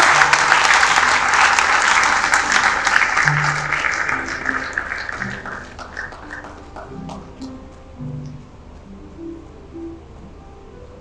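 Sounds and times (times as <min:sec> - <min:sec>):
audience applauding: 0:00.0 - 0:07.4
background music low notes: 0:02.6 - 0:11.0.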